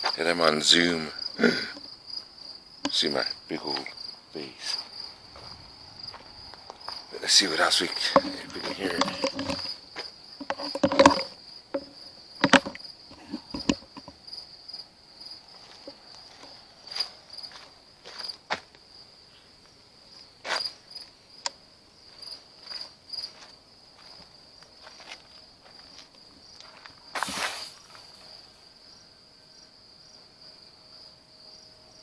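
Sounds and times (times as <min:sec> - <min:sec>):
crickets chirring: 0:00.0 - 0:32.0
short knocks and rustles: 0:08.0 - 0:09.8.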